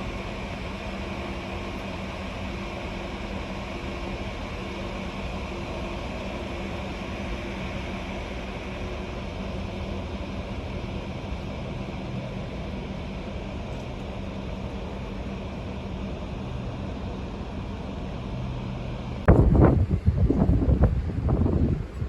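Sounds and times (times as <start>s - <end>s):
low engine-like hum: 0.0s - 22.0s
steady rushing noise: 15.4s - 22.0s.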